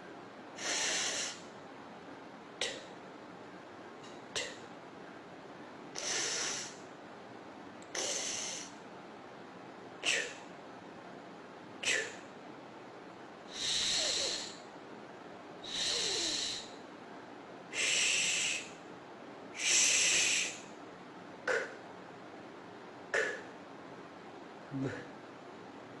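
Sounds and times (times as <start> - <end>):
person hissing consonant sounds: 0.6 - 1.4, 6.0 - 6.8, 7.9 - 8.7, 10.0 - 10.4, 11.8 - 12.2, 13.5 - 14.6, 15.6 - 16.7, 17.8 - 18.8, 19.6 - 20.7, 21.5 - 21.8, 23.2 - 23.5
short puffs of breath: 0.6 - 1.5, 6.0 - 6.8, 7.9 - 8.8, 10.0 - 10.4, 11.8 - 12.2, 13.5 - 14.6, 15.6 - 16.8, 17.7 - 18.8, 19.6 - 20.6.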